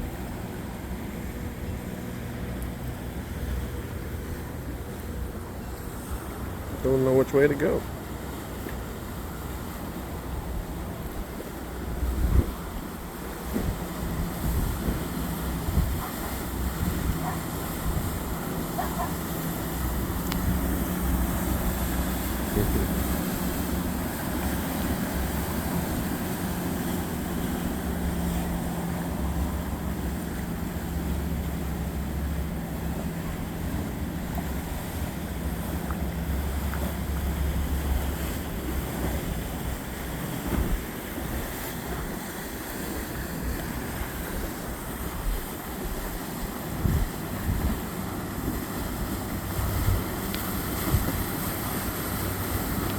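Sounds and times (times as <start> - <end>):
boat engine drone: 0.0 - 52.9
rushing water: 0.0 - 52.9
wind buffeting microphone: 10.4 - 30.2, 42.8 - 52.9.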